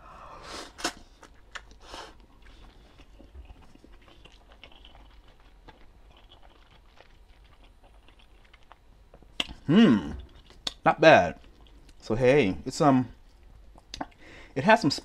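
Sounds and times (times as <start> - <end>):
person chewing noodles: 0.2 - 10.8, 11.4 - 12.0
mouth noises: 9.4 - 11.3.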